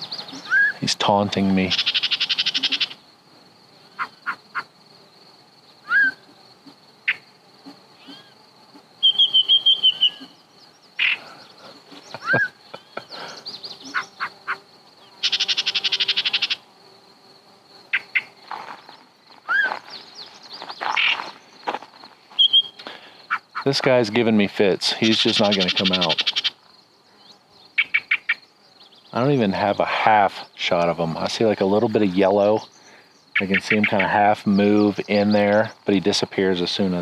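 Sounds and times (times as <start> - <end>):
bird chirps: 0.0 - 0.8, 1.6 - 3.0, 5.8 - 6.3, 8.0 - 16.6, 17.9 - 21.7, 22.3 - 23.6, 27.2 - 29.3
bird song with rattling notes: 0.0 - 3.0, 8.0 - 16.6, 17.9 - 21.7, 22.4 - 23.8, 24.9 - 36.9
bird whistles and clucks: 0.2 - 0.8, 5.8 - 6.3, 22.4 - 23.4.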